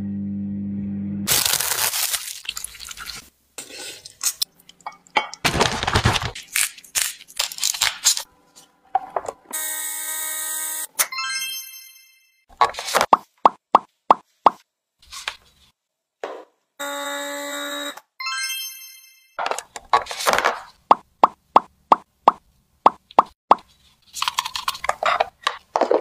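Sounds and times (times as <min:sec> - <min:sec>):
packaging crinkling: 0:01.3 - 0:03.2, 0:05.5 - 0:08.3.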